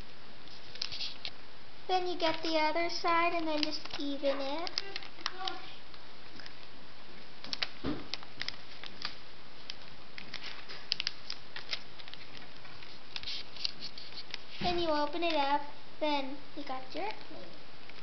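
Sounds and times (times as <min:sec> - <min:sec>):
paper crinkling: 0:00.4 - 0:01.3, 0:02.1 - 0:15.5.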